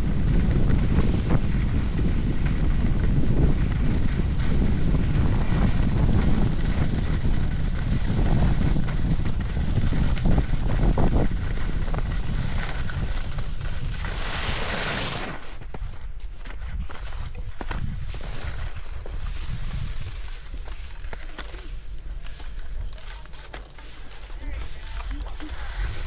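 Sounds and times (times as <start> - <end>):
wind buffeting microphone: 0.0 - 15.0, 16.6 - 20.7.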